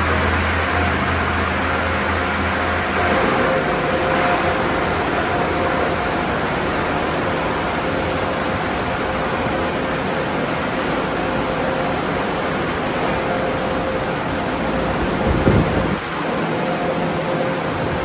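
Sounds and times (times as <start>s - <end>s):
water spray rushing: 0.0s - 8.4s
faint motor hum: 0.0s - 18.0s
machinery noise: 0.0s - 18.0s.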